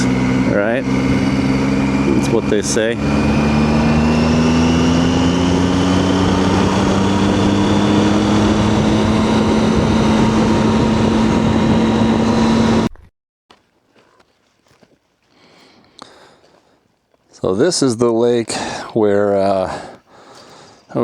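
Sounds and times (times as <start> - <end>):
motorcycle engine running: 0.0 - 13.1
wind and road noise: 0.0 - 13.1.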